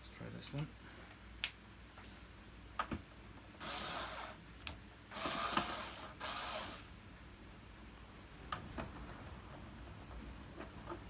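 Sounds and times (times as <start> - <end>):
screwdriver mechanical bursts: 3.6 - 4.4, 5.1 - 6.9.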